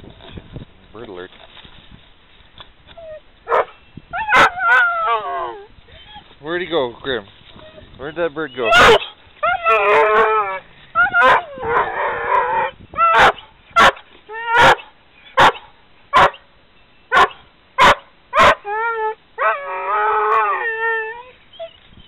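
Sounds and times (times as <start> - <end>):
dog whining and howling: 3.0 - 6.3, 8.5 - 13.4, 14.3 - 15.6, 18.4 - 21.9
dog barking sharply: 13.2 - 14.0, 15.4 - 16.4, 17.1 - 18.6.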